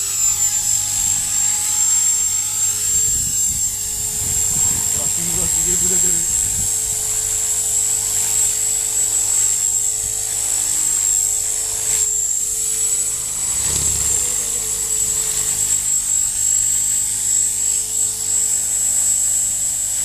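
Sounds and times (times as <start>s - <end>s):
model helicopter whine: 0.0s - 20.0s
harsh rushing noise: 13.2s - 16.2s
low rumble: 13.4s - 16.0s.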